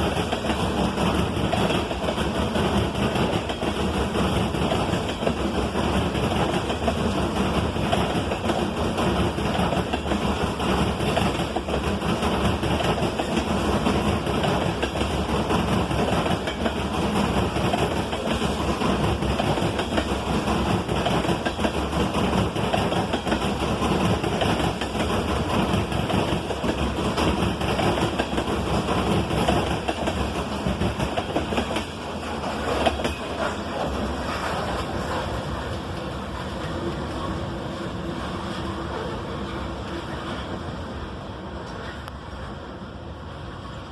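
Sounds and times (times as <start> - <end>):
steel wheels clattering over rails: 0.0 - 40.5
freight train rumbling: 0.0 - 43.9.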